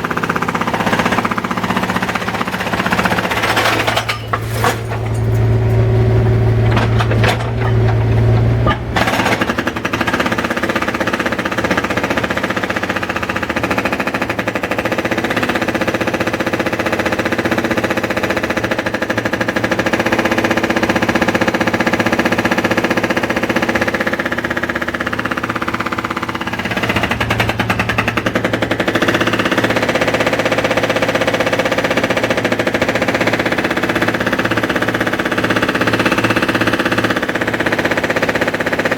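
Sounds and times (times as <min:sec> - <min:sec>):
machinery hammering rapidly: 0:06.8 - 0:14.3.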